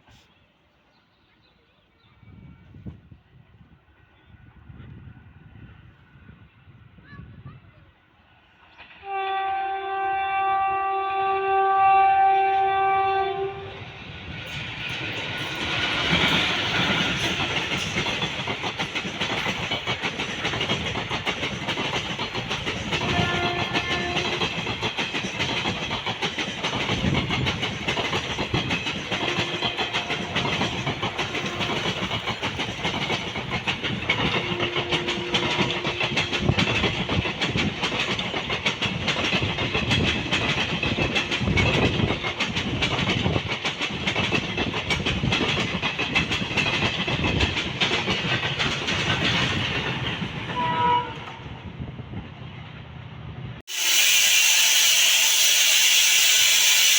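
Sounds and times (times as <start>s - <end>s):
train passing rumble: 0.0s - 56.9s
locomotive horn blast: 9.0s - 13.8s, 23.0s - 24.4s, 50.6s - 51.4s
wheels clattering over rail joints: 14.4s - 51.5s.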